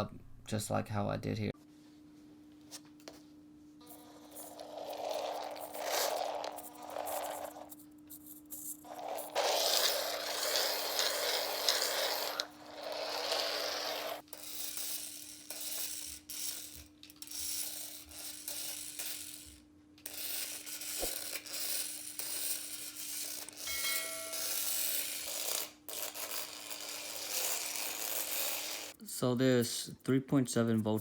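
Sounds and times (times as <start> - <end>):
micro rc car motor whirring: 3.8 - 23.7, 24.3 - 29.0.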